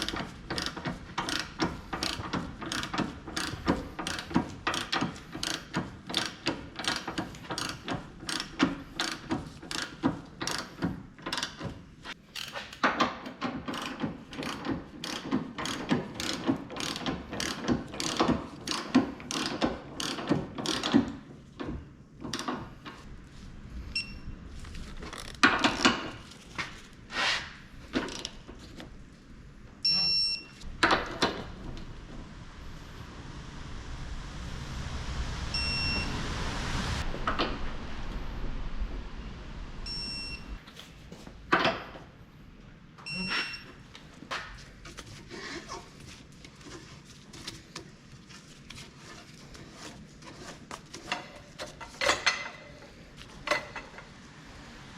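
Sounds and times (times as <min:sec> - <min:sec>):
socket ratchet clicking: 0:00.0 - 0:10.7
short electronic beeps: 0:29.8 - 0:30.6, 0:35.6 - 0:36.2, 0:39.9 - 0:40.6, 0:43.1 - 0:43.7.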